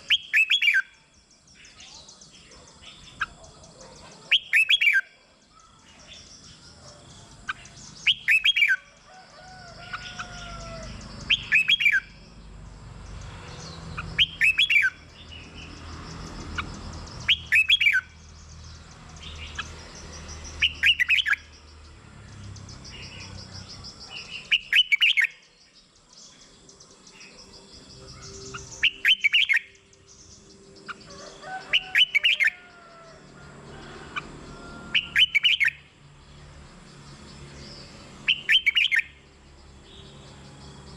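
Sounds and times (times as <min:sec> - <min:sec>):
bulbul whistled song: 0:00.0 - 0:01.0, 0:04.3 - 0:05.2, 0:07.5 - 0:08.8, 0:11.2 - 0:12.2, 0:14.0 - 0:15.1, 0:17.2 - 0:18.2, 0:20.4 - 0:21.5, 0:23.7 - 0:25.5, 0:27.2 - 0:30.9, 0:34.9 - 0:35.8, 0:38.3 - 0:39.2
faint bird chirps: 0:37.6 - 0:40.9.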